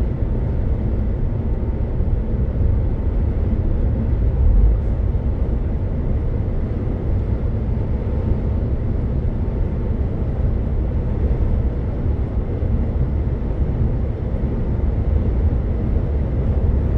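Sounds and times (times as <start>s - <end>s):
truck engine rumble: 0.0s - 16.9s
road noise: 0.1s - 13.2s.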